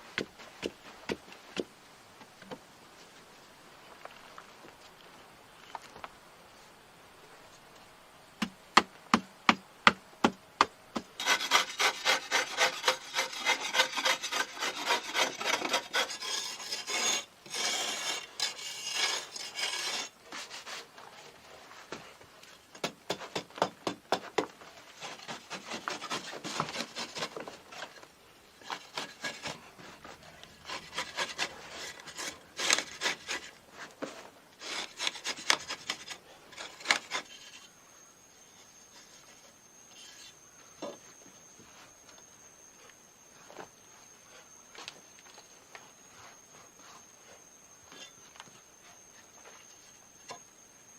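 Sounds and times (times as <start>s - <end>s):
rasping strokes on wood: 11.2s - 20.8s, 30.6s - 33.5s
hand tool scraping wood: 11.2s - 21.8s, 23.1s - 28.0s, 28.6s - 37.7s.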